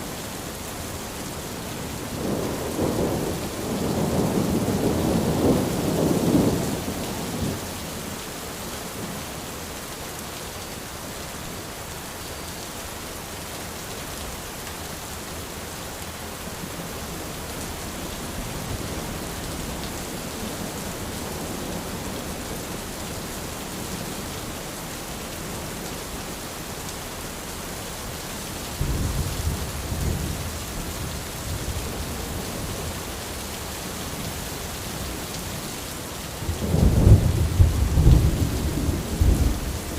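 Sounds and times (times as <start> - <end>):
rain falling on an umbrella: 0.0 - 39.9
thunder rumbling: 36.4 - 39.9.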